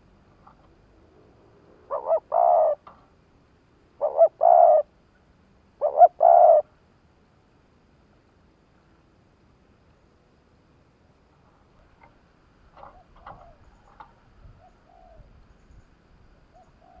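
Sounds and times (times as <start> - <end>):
dove cooing: 1.8 - 3.0, 4.0 - 4.9, 5.8 - 6.7, 12.8 - 15.4, 16.5 - 17.0.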